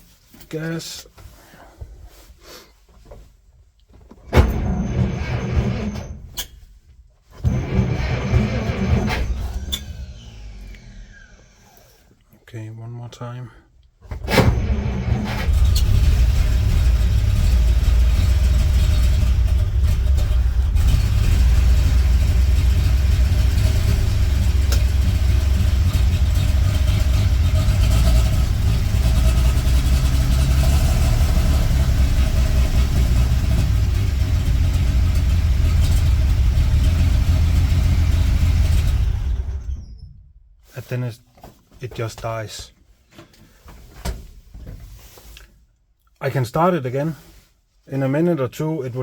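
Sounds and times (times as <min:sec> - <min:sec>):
truck engine starting and running: 0:04.3 - 0:06.6, 0:07.3 - 0:11.9, 0:14.1 - 0:40.4.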